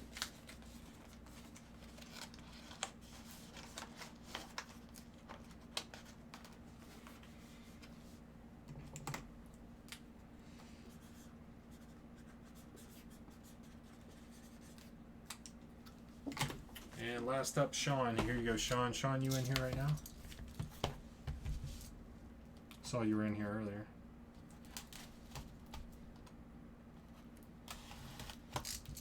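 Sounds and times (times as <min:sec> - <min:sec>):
light clicks and scratches: 0:00.0 - 0:08.1, 0:18.2 - 0:21.9
low steady hum: 0:00.0 - 0:29.0.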